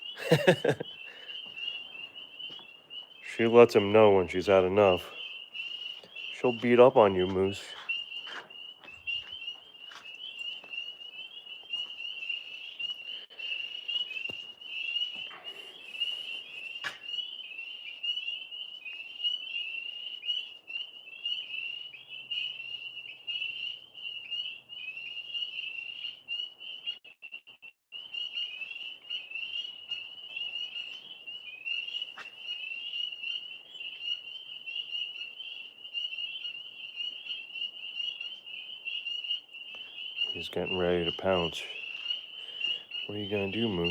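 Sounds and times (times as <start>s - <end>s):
frogs trilling chorus: 0.0s - 27.4s, 28.0s - 43.9s.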